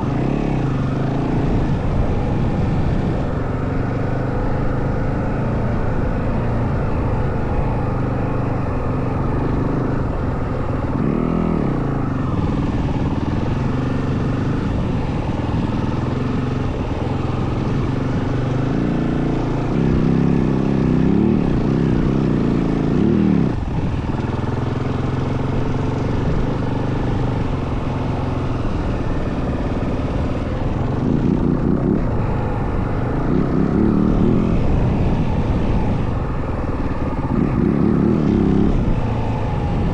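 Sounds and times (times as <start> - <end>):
dirt bike engine revving: 8.9 - 23.6, 27.8 - 39.9.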